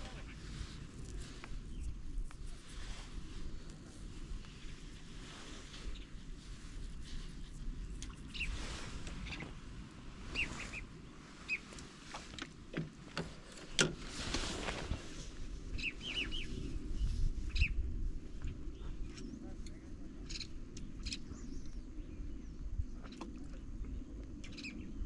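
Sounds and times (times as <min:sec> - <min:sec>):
wind rumble on microphone: 0:00.0 - 0:25.0
bird chirping: 0:10.3 - 0:11.7.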